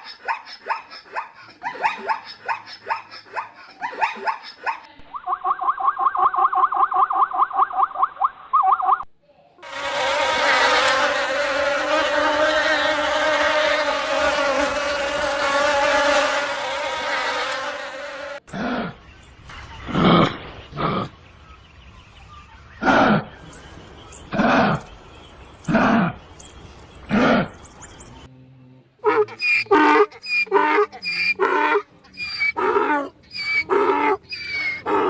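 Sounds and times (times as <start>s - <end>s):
insect buzzing: 9.6s - 18.4s
loud animal calls: 29.0s - 35.0s.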